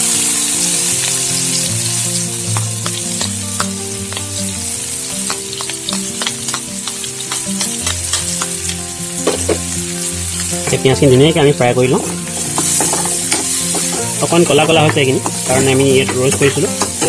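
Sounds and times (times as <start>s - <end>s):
onions sizzling in hot fat: 0.0s - 17.0s
spoon scraping pan: 12.0s - 17.0s.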